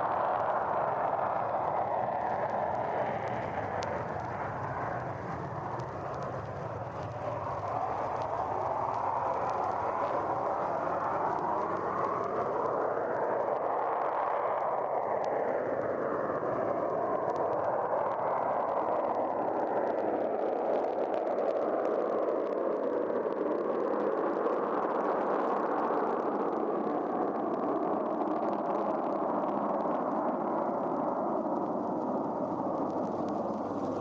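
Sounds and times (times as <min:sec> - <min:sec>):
vinyl surface crackle: 0:01.1 - 0:14.3, 0:29.8 - 0:34.0.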